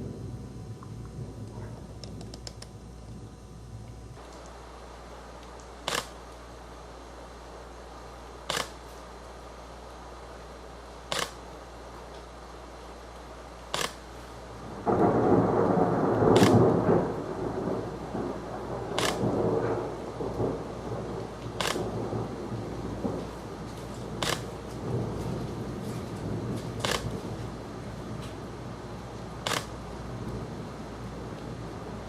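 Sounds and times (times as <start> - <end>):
rolling thunder: 0.0 - 2.2, 14.6 - 32.0
sharp click: 5.5 - 6.2, 8.5 - 8.8, 11.1 - 11.4, 13.7 - 14.0, 16.3 - 16.6, 19.0 - 19.2, 21.6 - 21.9, 24.2 - 24.5, 26.8 - 27.1, 29.4 - 29.8.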